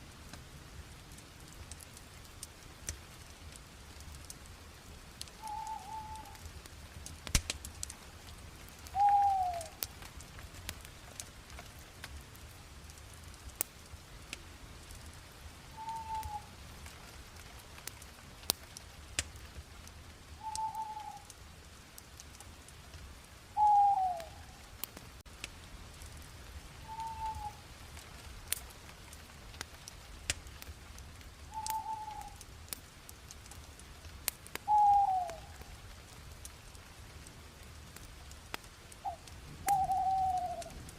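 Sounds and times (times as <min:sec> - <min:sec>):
wood fire crackling: 0:00.0 - 0:40.9
bird whistling call: 0:05.4 - 0:06.4, 0:09.0 - 0:09.7, 0:15.8 - 0:16.5, 0:20.4 - 0:21.2, 0:23.6 - 0:24.3, 0:26.8 - 0:27.6, 0:31.5 - 0:32.4, 0:34.7 - 0:35.4, 0:39.0 - 0:40.7.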